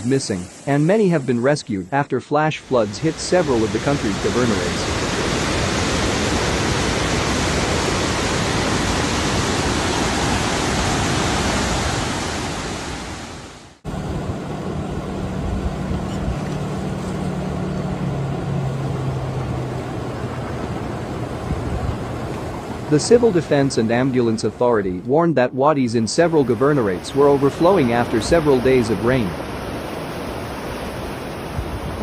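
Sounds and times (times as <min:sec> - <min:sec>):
floodwater rushing: 0:00.0 - 0:01.6, 0:02.4 - 0:32.0.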